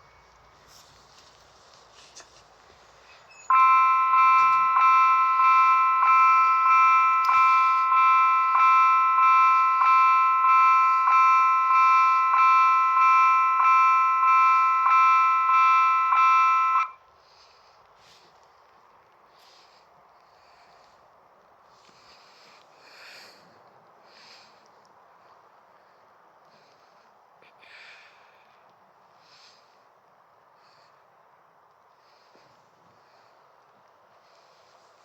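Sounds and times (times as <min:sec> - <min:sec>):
level crossing warning bell: 0:03.2 - 0:17.0.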